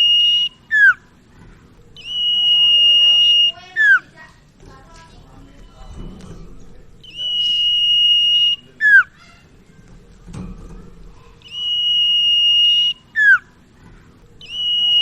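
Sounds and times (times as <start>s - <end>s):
bird whistling song: 0.0s - 1.2s, 1.9s - 4.1s, 7.0s - 9.4s, 11.4s - 13.6s, 14.4s - 15.0s.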